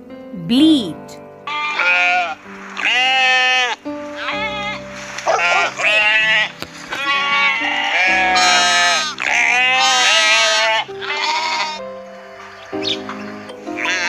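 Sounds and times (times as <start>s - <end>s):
background music: 0.0s - 14.0s
sheep bleating: 1.5s - 11.8s, 13.8s - 14.0s.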